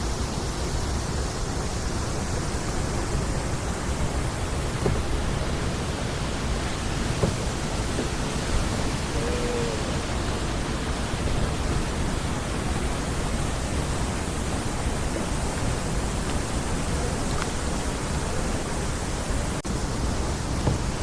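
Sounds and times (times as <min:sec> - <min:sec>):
steady rushing hiss: 0:00.0 - 0:21.0
faint knocks: 0:04.1 - 0:08.8, 0:20.1 - 0:21.0.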